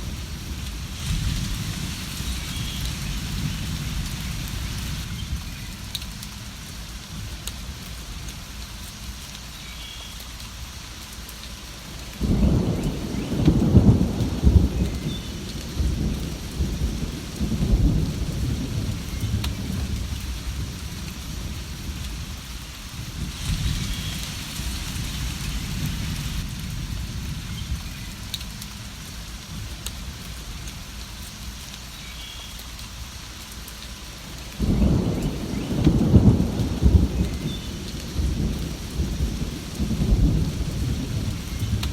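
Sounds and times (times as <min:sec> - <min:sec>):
steady rain: 0:00.0 - 0:41.9
rolling thunder: 0:12.2 - 0:22.3, 0:34.6 - 0:41.9.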